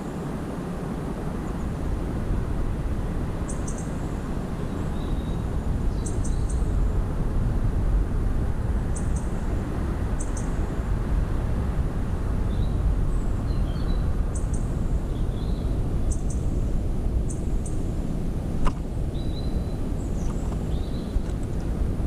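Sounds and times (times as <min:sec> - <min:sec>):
small birds chirping: 0:04.6 - 0:06.7, 0:10.2 - 0:10.7, 0:12.5 - 0:16.6, 0:19.1 - 0:21.4.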